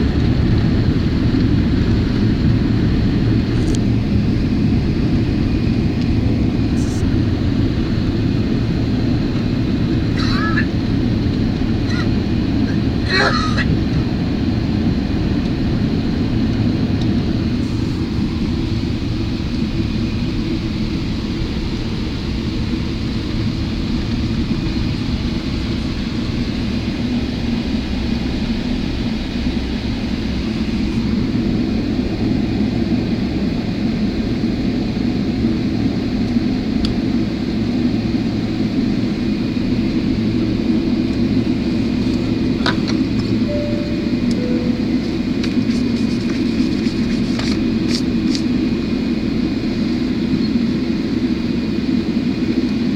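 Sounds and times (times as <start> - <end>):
airplane cabin engine rumble: 0.0 - 52.9
faint steady high tone: 43.4 - 45.6.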